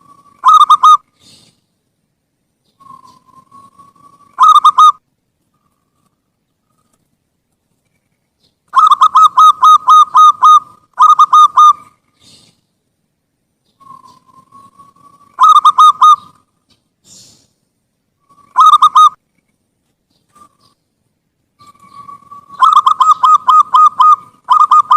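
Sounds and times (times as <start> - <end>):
dove cooing: 0.0 - 1.4, 2.8 - 5.0, 8.8 - 12.5, 13.8 - 16.4, 18.2 - 19.2, 21.6 - 24.9.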